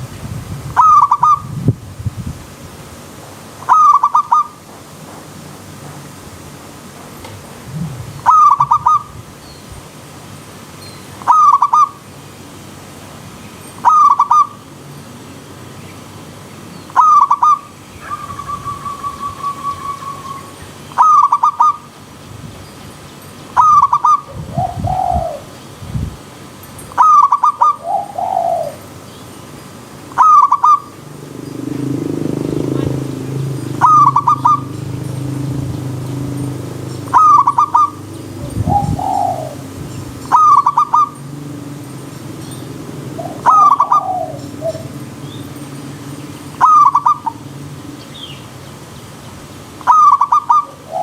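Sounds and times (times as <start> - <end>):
bird trilling: 0.8 - 1.5, 3.7 - 4.6, 8.2 - 9.1, 11.2 - 12.0, 13.8 - 14.6, 16.8 - 21.9, 23.5 - 25.5, 26.9 - 29.1, 30.1 - 48.5, 49.8 - 51.0
dove cooing: 0.8 - 1.5, 3.7 - 4.5, 7.7 - 9.1, 11.3 - 11.9, 13.8 - 14.6, 17.0 - 21.9, 23.6 - 25.5, 26.9 - 29.0, 30.1 - 45.5, 46.6 - 47.5, 49.8 - 51.0
low bird call: 0.8 - 1.5, 3.7 - 4.6, 8.2 - 9.1, 11.2 - 12.0, 13.8 - 14.6, 16.8 - 21.9, 23.6 - 25.6, 26.9 - 28.9, 30.1 - 41.4, 42.4 - 48.5, 49.8 - 51.0.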